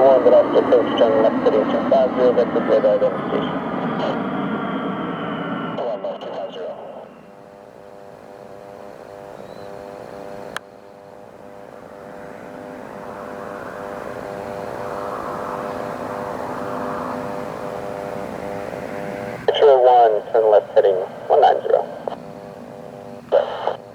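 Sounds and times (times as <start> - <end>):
rush of noise: 0.0 - 7.2, 11.5 - 22.2, 23.3 - 23.8
aircraft engine hum: 0.0 - 23.9.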